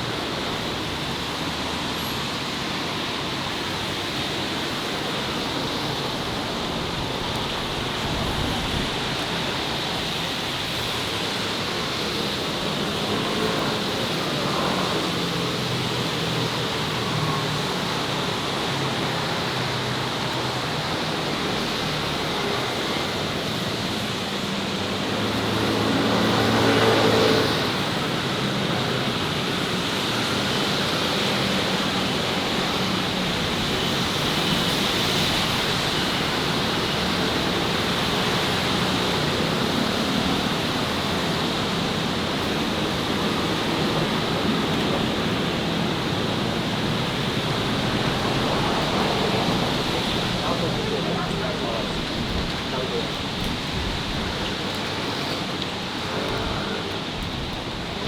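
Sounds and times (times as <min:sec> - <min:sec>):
city street traffic: 0:00.0 - 0:58.0
vehicle passing close: 0:25.0 - 0:57.7.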